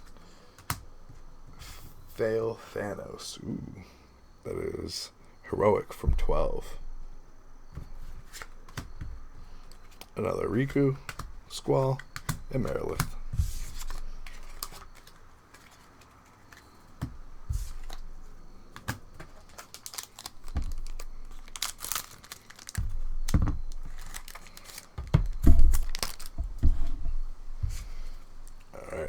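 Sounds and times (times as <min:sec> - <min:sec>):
cards clicking and rustling: 0:07.7 - 0:28.8
wrapper crinkling and tearing: 0:13.7 - 0:16.8, 0:18.7 - 0:26.4.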